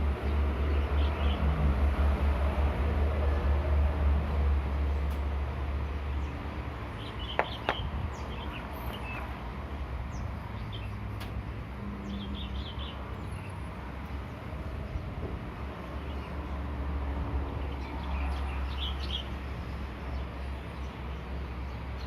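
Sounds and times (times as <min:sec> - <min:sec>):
small birds chirping: 0:06.2 - 0:09.4, 0:17.6 - 0:22.0.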